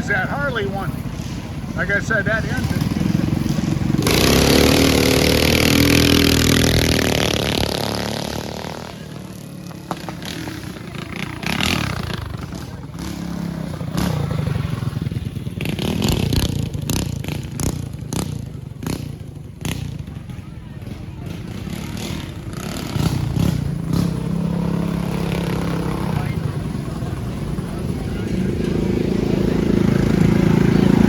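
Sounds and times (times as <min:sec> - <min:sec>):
small engine at full throttle: 0:03.8 - 0:09.1.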